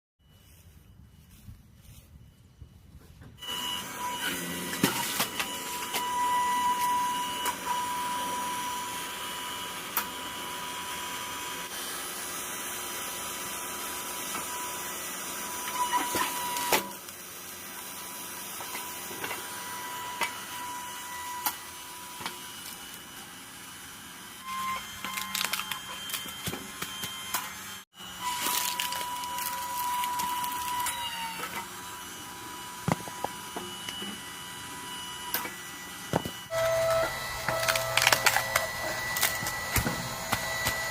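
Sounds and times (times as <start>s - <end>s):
hydraulic motor whine: 3.2s - 40.9s
logs cracking as they split: 28.4s - 31.0s.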